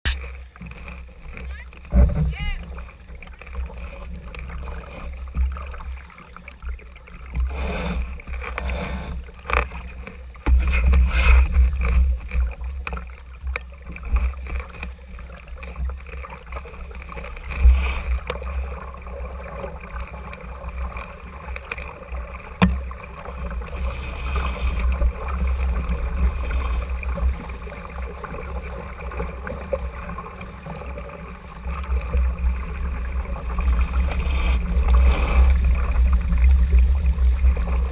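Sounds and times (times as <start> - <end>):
water slapping along hull: 0.0 - 37.9
wind rumble on microphone: 7.3 - 37.9
knocks on boat: 22.6 - 22.9.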